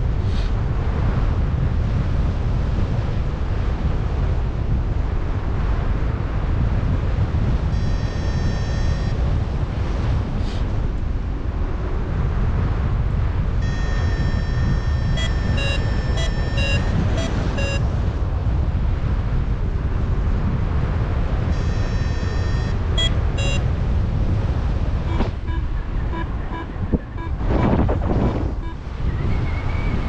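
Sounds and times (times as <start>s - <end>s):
variometer beeping: 7.7s - 9.2s, 13.6s - 17.8s, 21.5s - 23.7s, 25.0s - 28.8s
airflow rushing over microphone: 9.4s - 30.0s.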